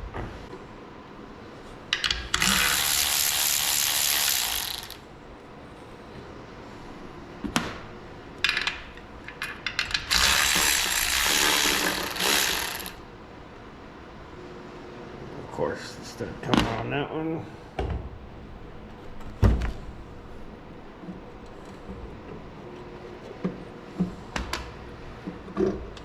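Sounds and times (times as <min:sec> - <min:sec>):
ratchet turning bolts: 0:02.0 - 0:05.0, 0:10.0 - 0:13.0.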